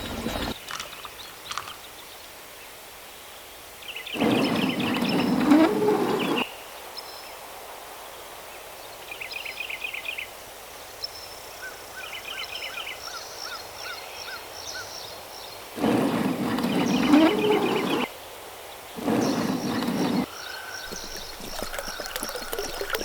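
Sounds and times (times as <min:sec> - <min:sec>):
birds chirping and trilling: 0:00.0 - 0:01.8.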